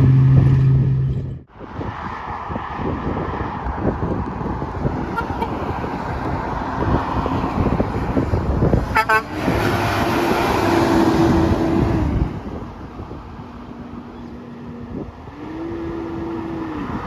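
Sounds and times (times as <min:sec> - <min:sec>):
truck horn toot: 0:05.1 - 0:05.7, 0:08.9 - 0:09.7.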